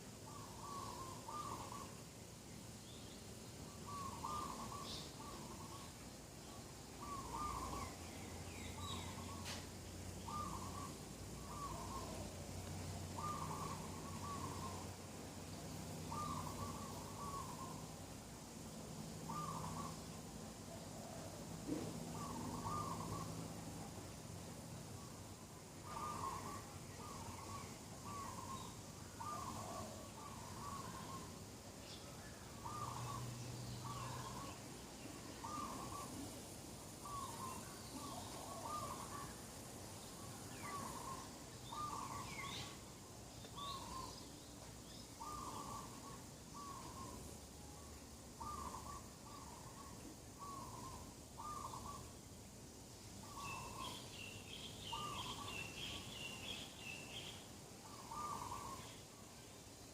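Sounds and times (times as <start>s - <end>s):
bird repeating low call: 3.9s - 5.8s, 13.2s - 14.9s, 16.1s - 17.8s, 19.3s - 19.9s, 22.2s - 23.3s, 25.9s - 31.3s, 57.8s - 58.9s.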